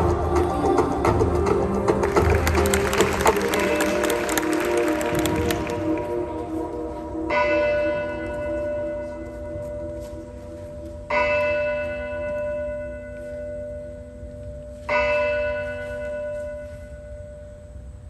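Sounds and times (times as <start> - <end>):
recorded music: 0.0 - 11.9.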